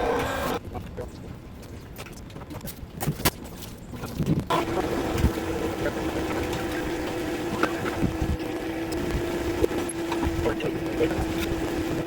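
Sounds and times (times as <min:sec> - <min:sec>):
small machine humming: 0:00.0 - 0:00.6, 0:04.5 - 0:12.0.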